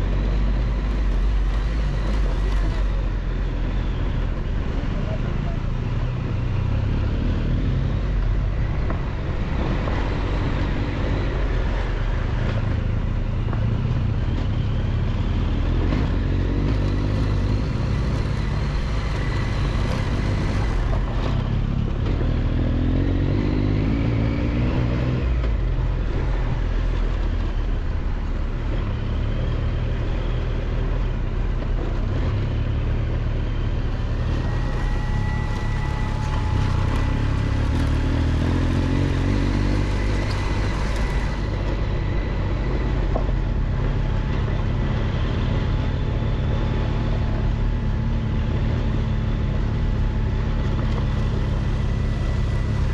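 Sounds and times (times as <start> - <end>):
wind noise: 7.5 - 14.6
motorcycle engine running: 25.0 - 52.9
steady high tone: 33.8 - 39.0.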